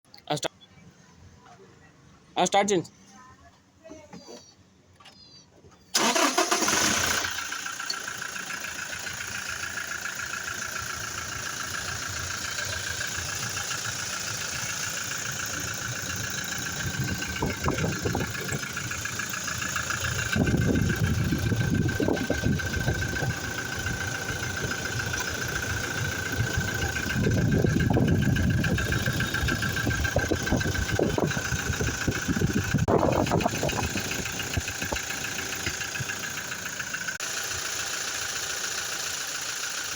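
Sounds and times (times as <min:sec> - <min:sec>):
engine starting and idling: 0:05.8 - 0:39.9.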